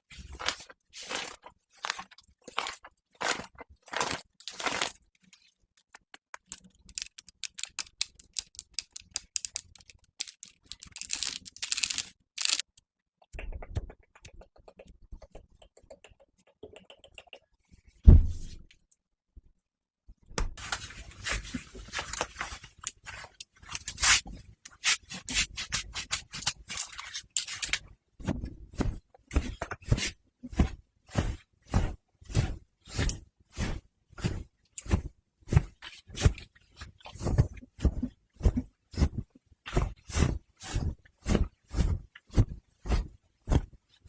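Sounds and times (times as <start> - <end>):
rubbing and scratching: 0.0 - 5.8, 6.4 - 12.7, 20.6 - 44.0
low thump: 18.1 - 18.6.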